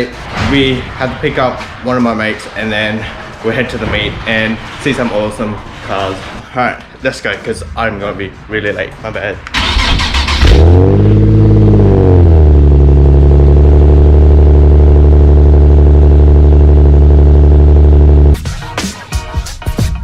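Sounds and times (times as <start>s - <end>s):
car engine starting and idling: 9.4s - 18.4s.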